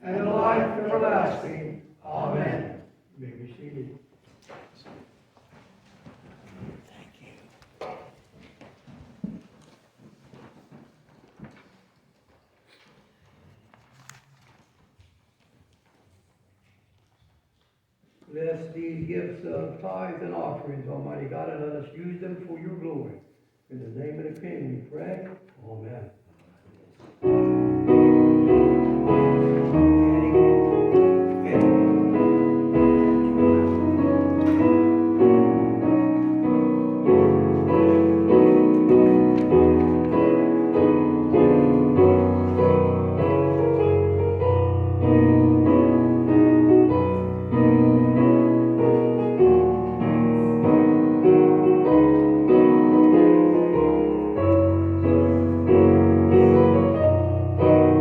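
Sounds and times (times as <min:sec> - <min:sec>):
keyboard church music: 0:00.0 - 0:03.6, 0:27.2 - 0:58.0.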